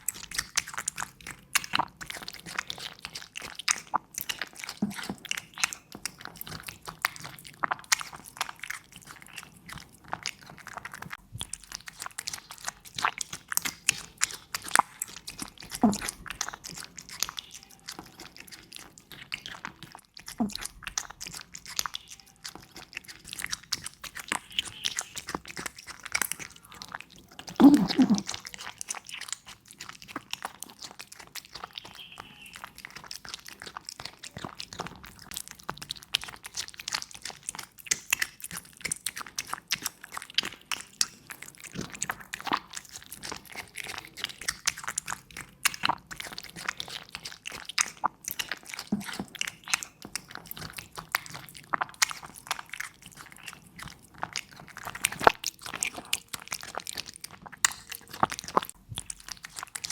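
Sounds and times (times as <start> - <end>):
cat crunching food: 0.0 - 59.9.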